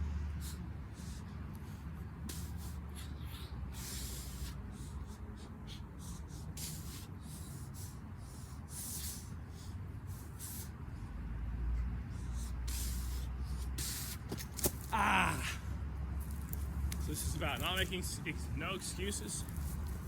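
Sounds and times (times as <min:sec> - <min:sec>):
man breathing hard: 0:00.0 - 0:14.3, 0:15.0 - 0:15.9
low steady rumble: 0:00.0 - 0:20.0.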